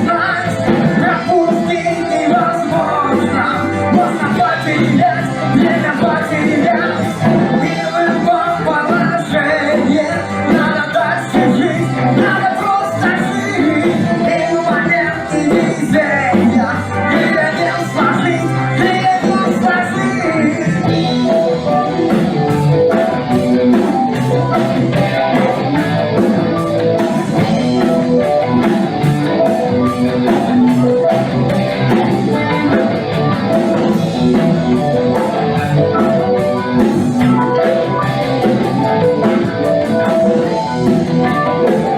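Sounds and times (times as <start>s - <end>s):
person singing: 0.0s - 23.2s
drums steady beat: 0.0s - 41.9s
rock band playing: 0.0s - 41.9s.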